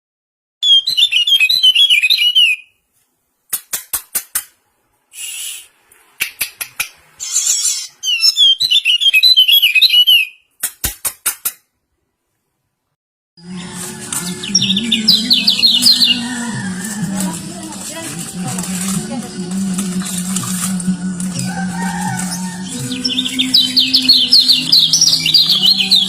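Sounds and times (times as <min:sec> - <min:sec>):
white-eyes twittering: 0:07.2 - 0:10.1, 0:14.2 - 0:18.6, 0:21.4 - 0:26.0
sharp ticking bird notes: 0:14.2 - 0:17.0, 0:19.4 - 0:26.0.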